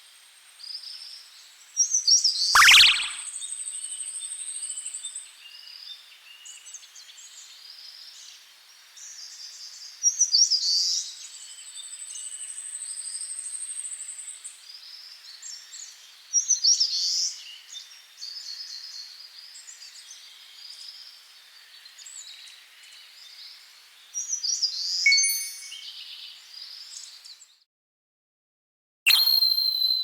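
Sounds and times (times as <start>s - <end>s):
thin fast high trill: 2.6s - 3.3s.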